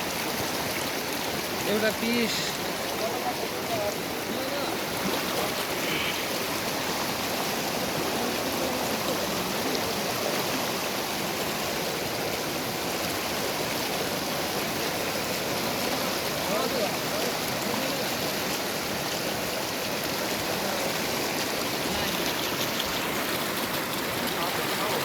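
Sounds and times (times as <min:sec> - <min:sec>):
river rushing over stones: 0:00.0 - 0:25.0.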